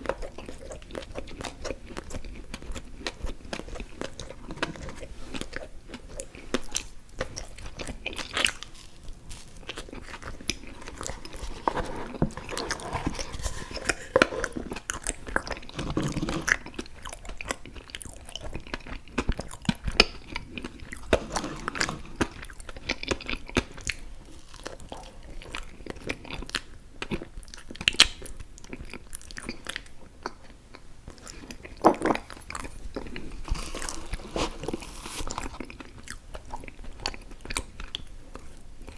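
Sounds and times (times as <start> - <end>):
close chewing and biting: 0.0 - 38.9.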